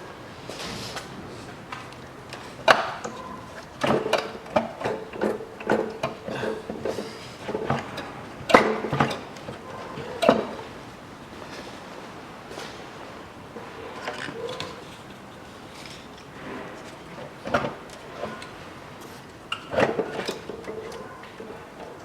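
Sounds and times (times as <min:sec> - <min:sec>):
tools and metal parts clattering: 0:02.2 - 0:10.8, 0:13.5 - 0:22.0.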